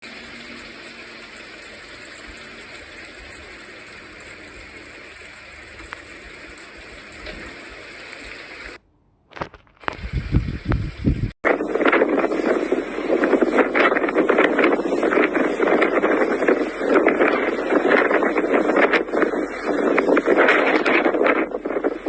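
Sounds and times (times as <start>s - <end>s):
wind gusts buffeting microphone: 9.9s - 22.0s
blizzard wind hiss: 10.0s - 22.0s.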